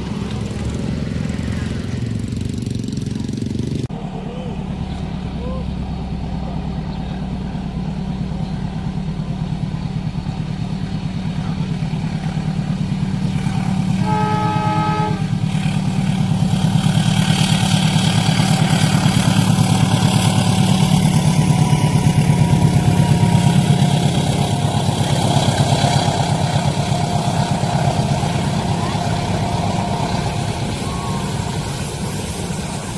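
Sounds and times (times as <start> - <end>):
train clattering past: 0.0 - 32.9
train engine rumble: 0.0 - 32.9
train horn blast: 13.5 - 15.8, 20.8 - 32.2.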